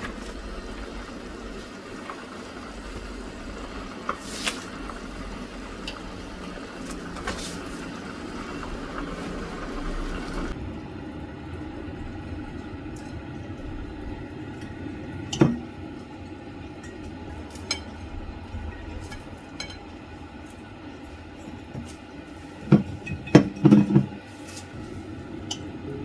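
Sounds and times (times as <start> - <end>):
steady low hum: 0.0 - 26.0
kitchenware knocking and clinking: 22.6 - 24.2.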